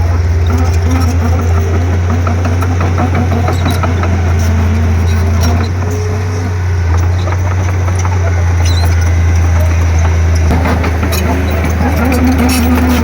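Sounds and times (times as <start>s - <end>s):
bulldozer diesel engine droning: 0.0s - 13.0s
clanks and clicks: 0.0s - 13.0s.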